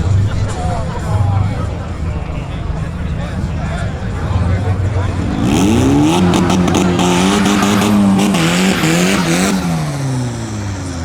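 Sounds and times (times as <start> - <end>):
tyres spinning hiss: 1.4 - 10.6
car engine revving high: 1.6 - 11.0.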